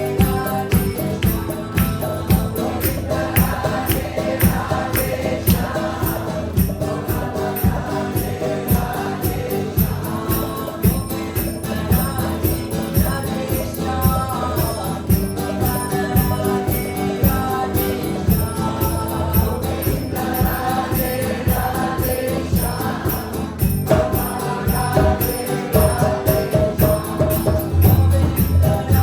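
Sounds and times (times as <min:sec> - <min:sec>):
group chanting: 0:00.0 - 0:29.0
jingling percussion: 0:00.0 - 0:29.0.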